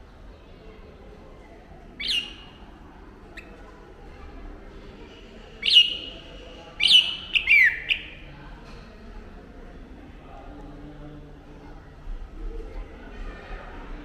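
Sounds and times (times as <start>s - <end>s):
bird giving sharp calls: 2.0s - 2.6s, 5.6s - 8.3s.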